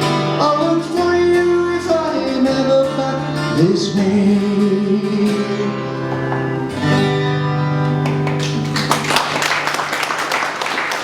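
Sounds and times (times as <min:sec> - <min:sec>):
guitar chords ringing: 0:00.0 - 0:08.8
audience applause: 0:07.8 - 0:11.0.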